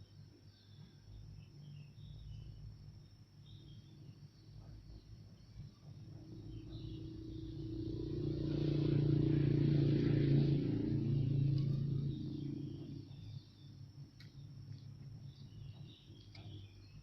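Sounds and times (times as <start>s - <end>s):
vehicle driving past: 6.0s - 13.9s.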